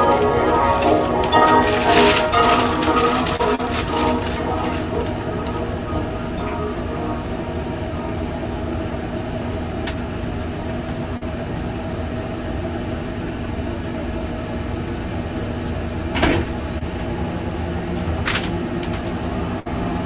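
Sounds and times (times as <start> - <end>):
machine hum: 0.0 - 15.4.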